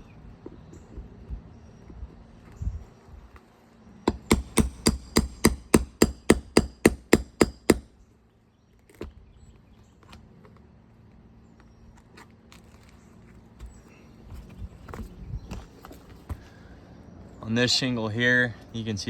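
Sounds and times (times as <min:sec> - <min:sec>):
hammer striking metal nail puller: 0:04.1 - 0:07.9.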